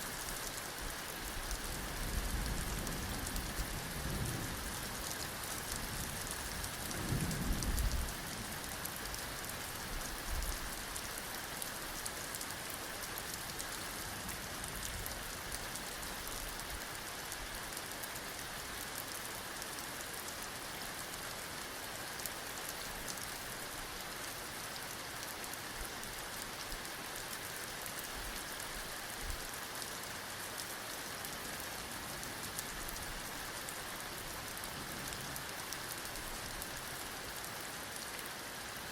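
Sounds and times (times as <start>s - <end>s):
heavy rain falling: 0.0s - 38.9s
low rumble of thunder: 1.8s - 9.4s.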